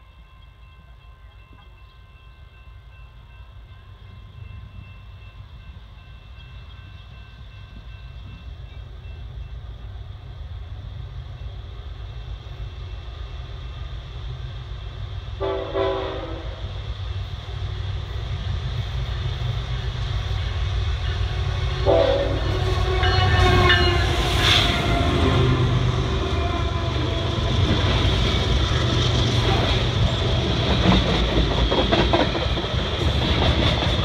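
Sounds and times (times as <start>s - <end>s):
diesel locomotives rumbling: 0.0s - 34.0s
train horn blast: 15.4s - 16.7s, 21.6s - 27.5s.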